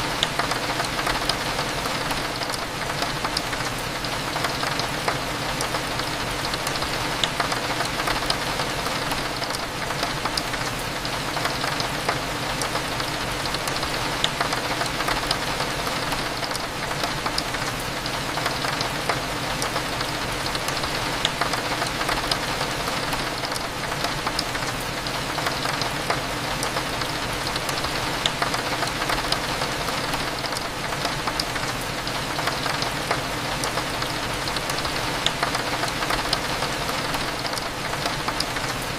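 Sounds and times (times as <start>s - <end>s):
rain on a window: 0.0s - 38.9s.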